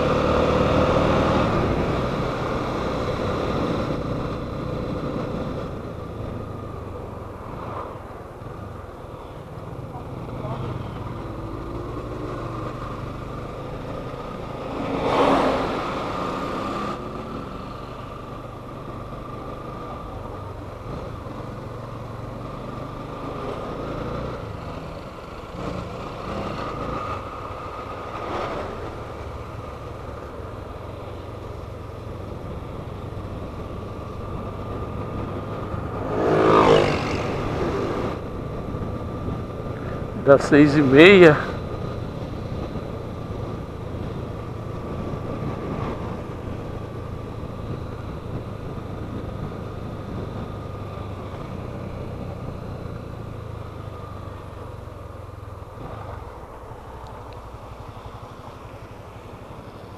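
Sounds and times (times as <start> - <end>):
road noise: 0.0 - 59.9.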